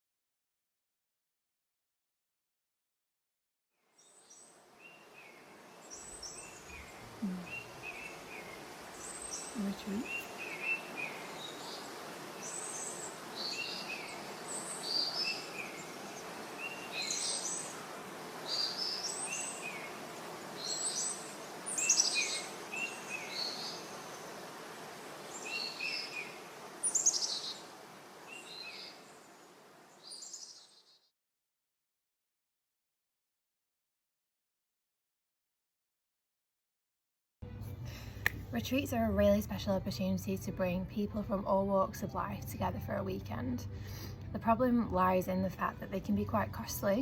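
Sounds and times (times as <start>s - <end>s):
outdoor ambience hiss: 3.8s - 31.1s, 37.4s - 47.0s
birds chirping: 4.0s - 31.1s.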